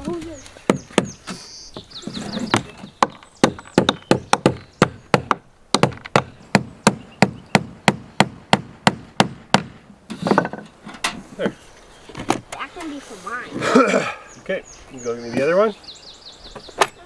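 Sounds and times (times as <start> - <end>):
hammer striking wood: 2.6 - 10.6.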